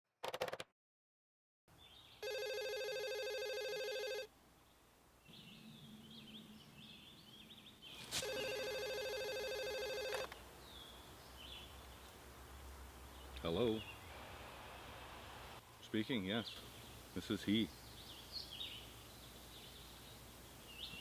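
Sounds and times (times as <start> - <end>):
telephone ringing: 2.2 - 4.3, 8.2 - 10.4.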